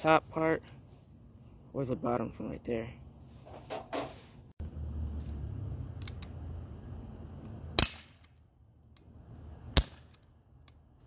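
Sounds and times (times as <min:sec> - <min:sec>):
rubbing handling noise: 0:03.2 - 0:04.5.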